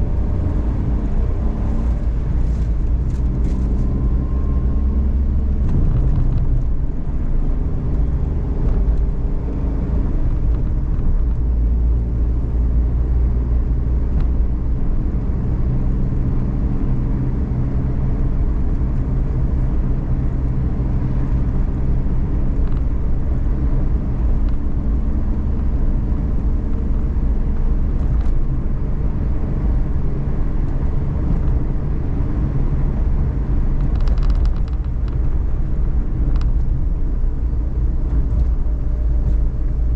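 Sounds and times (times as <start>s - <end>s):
road and engine rumble: 0.0s - 39.9s.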